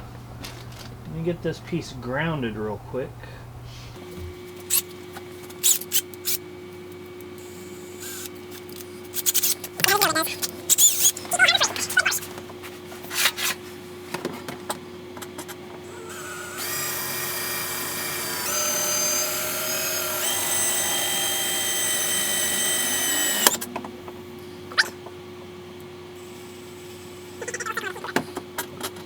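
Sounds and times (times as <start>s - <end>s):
electric drill whining: 7.4s - 8.3s, 15.8s - 23.7s.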